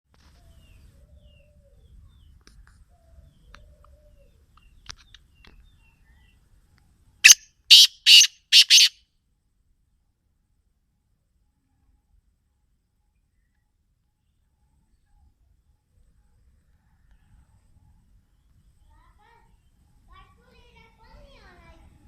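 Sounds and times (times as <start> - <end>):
faint bird chirps: 7.2 - 9.0, 16.2 - 20.2
francolin harsh call: 7.2 - 9.0.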